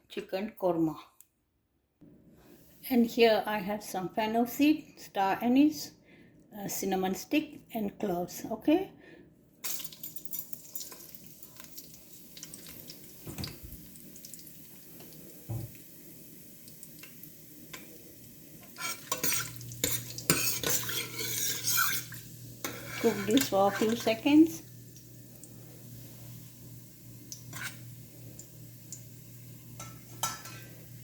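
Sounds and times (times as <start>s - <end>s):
low steady hum: 7.5s - 31.0s
spices sizzling in a pan: 9.6s - 31.0s
spoon scraping a pan: 18.6s - 24.5s, 27.3s - 28.0s, 29.7s - 31.0s.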